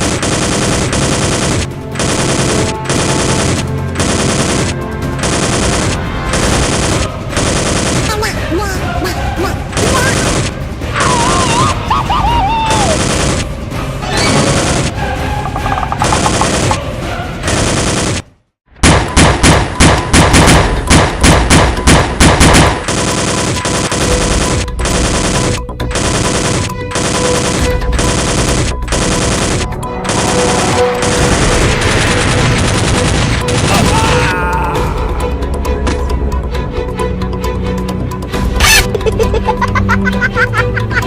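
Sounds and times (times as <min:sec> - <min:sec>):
rapid gunfire: 0:00.0 - 0:08.3, 0:09.7 - 0:11.6, 0:12.7 - 0:13.6, 0:14.3 - 0:14.9, 0:15.6 - 0:16.8, 0:17.4 - 0:34.2
action music: 0:00.0 - 0:41.0.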